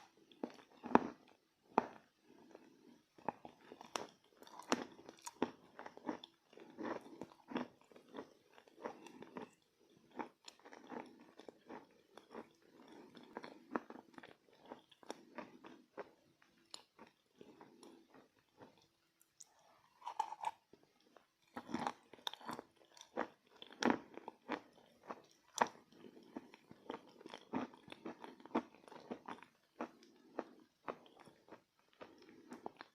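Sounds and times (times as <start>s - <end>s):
chewing crunchy chalk: 16.8s - 20.6s.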